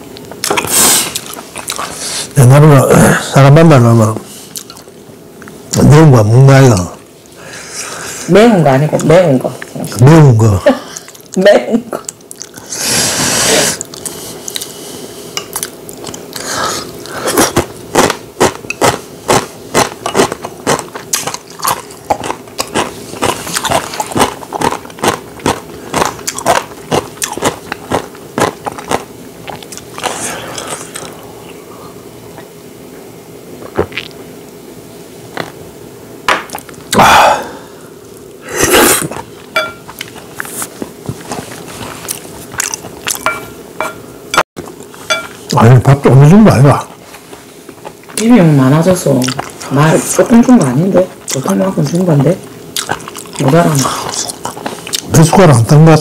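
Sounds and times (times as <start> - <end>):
chewing mouth clicks: 13.8 - 14.8, 52.8 - 55.1.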